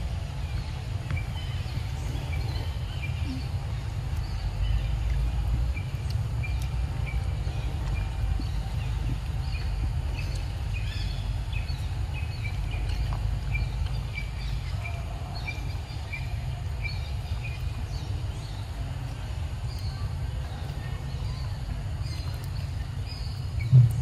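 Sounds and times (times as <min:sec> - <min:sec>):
steady low rumble: 0:00.0 - 0:24.0
other birds chirping: 0:00.2 - 0:24.0.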